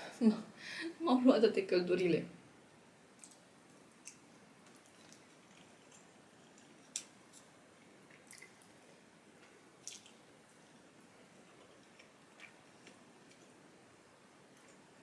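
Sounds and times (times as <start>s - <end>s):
faint wet chewing clicks: 3.1s - 8.8s, 9.4s - 10.7s, 11.4s - 13.6s.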